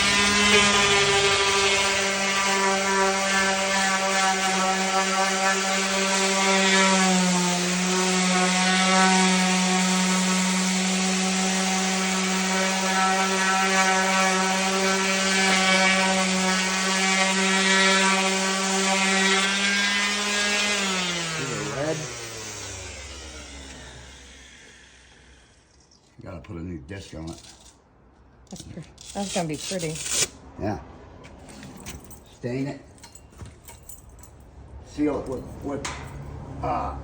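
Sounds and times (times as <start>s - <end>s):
power sander on wood: 0.0s - 25.7s.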